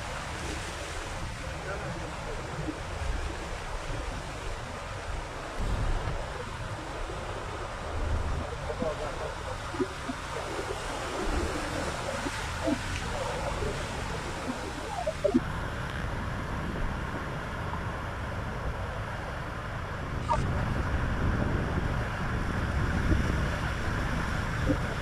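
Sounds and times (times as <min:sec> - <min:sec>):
wind buffeting microphone: 0:00.0 - 0:25.0
water splashing: 0:06.1 - 0:15.4.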